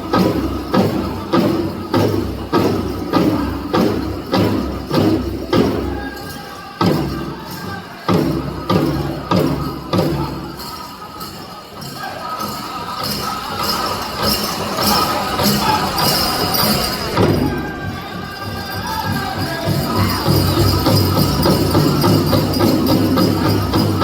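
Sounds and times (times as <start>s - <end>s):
jingle of dance bells: 0.0s - 24.0s
powwow drum beat: 0.0s - 24.0s
person singing: 5.5s - 24.0s.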